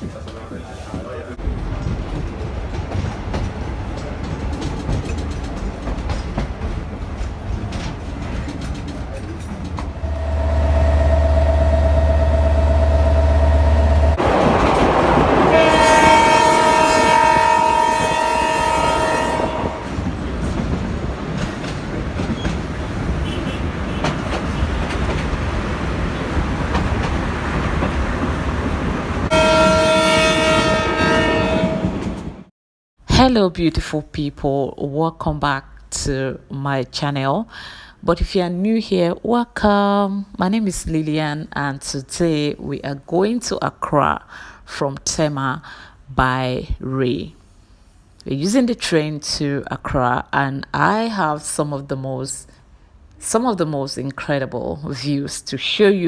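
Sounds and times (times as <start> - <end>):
wheels clacking over rails: 0.0 - 18.2, 19.8 - 30.0
train rumbling on track: 0.0 - 32.5
train horn: 9.9 - 20.1, 23.2 - 24.2, 29.2 - 32.5.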